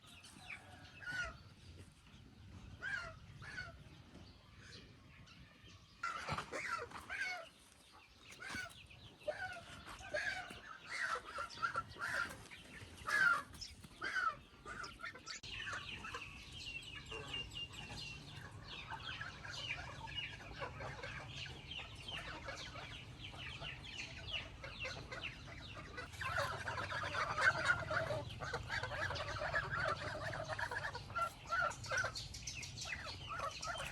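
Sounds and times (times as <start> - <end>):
chickens clucking: 0.0 - 33.9.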